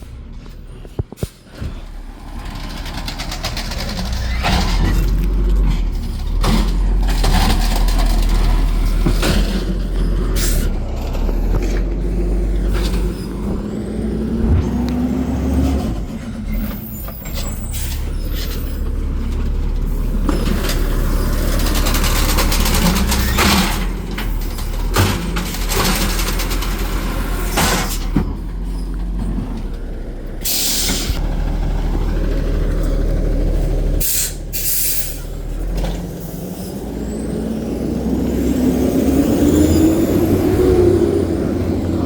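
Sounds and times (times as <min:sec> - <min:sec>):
garbage truck diesel engine: 0:00.0 - 0:42.0
rising tone: 0:13.2 - 0:16.8
air brake hisses: 0:30.4 - 0:31.2, 0:34.0 - 0:35.2.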